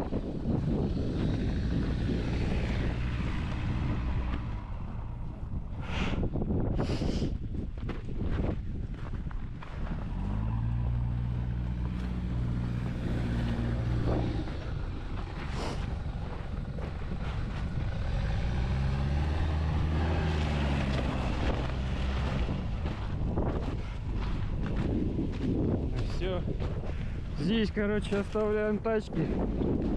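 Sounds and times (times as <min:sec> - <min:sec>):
off-road vehicle engine revving: 0:00.0 - 0:07.3, 0:09.6 - 0:26.6
wind buffeting microphone: 0:00.0 - 0:29.9.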